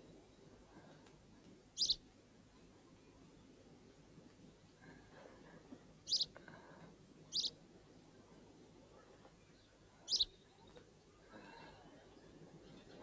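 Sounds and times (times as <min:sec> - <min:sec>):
small bird chirping: 0:01.8 - 0:02.0, 0:06.1 - 0:06.4, 0:07.3 - 0:07.6, 0:10.1 - 0:10.8.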